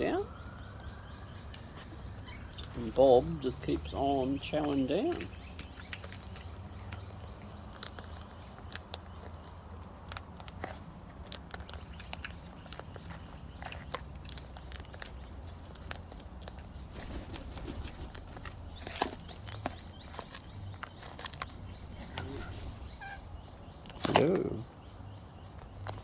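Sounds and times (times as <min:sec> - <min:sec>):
cockatoo cracking food in beak: 0:04.7 - 0:22.7, 0:23.8 - 0:24.7, 0:25.4 - 0:26.0.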